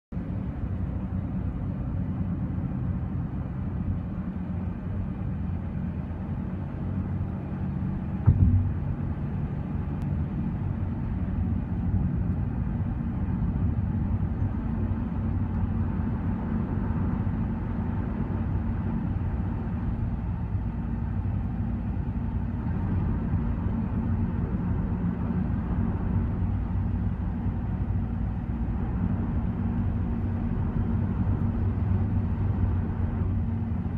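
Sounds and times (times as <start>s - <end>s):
car interior driving drone: 0.1s - 33.9s
brief thump: 8.2s - 8.8s.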